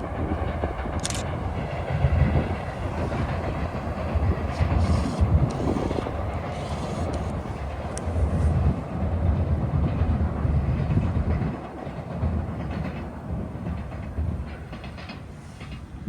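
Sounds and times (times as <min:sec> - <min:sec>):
train wheels rumbling and clattering: 0:00.0 - 0:16.0.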